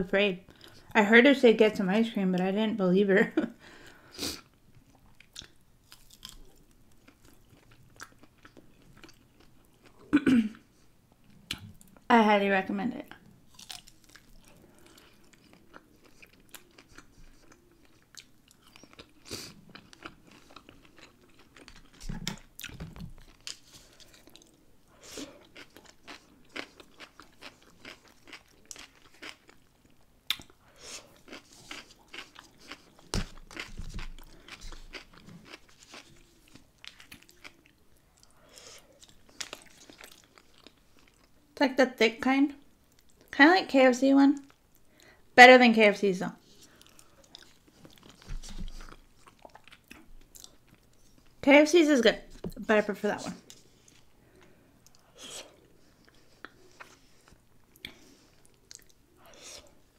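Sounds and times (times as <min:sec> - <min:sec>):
close chewing and crunching: 0:04.4 - 0:10.1, 0:13.1 - 0:41.5, 0:46.4 - 0:51.4, 0:53.4 - 0:59.9.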